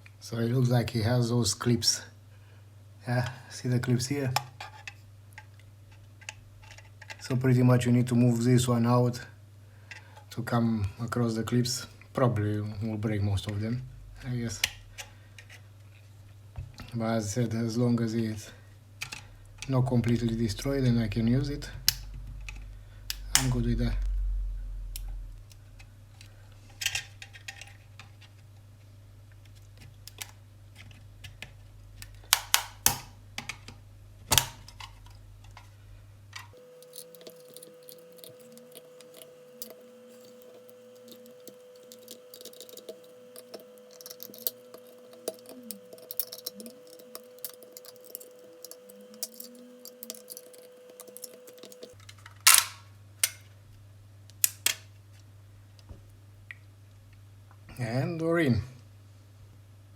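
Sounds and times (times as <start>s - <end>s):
plastic clips snapping: 32.1s - 34.9s
plastic shell creaking: 36.7s - 52.0s.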